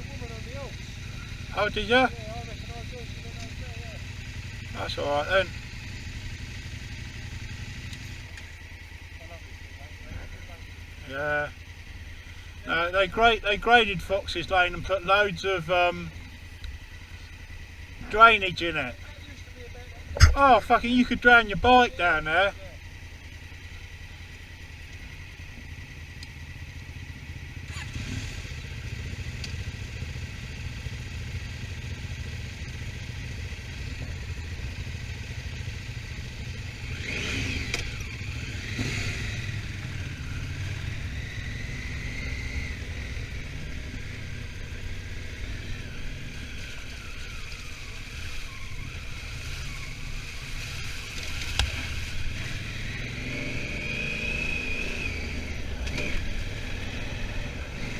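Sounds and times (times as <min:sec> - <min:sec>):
motorcycle engine running: 0:00.0 - 0:57.9
wind and road noise: 0:10.0 - 0:57.9.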